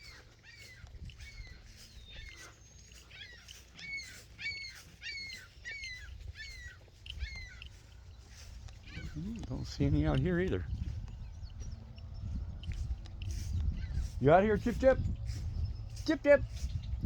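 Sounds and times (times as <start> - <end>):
animal chirping call: 0.0 - 9.6.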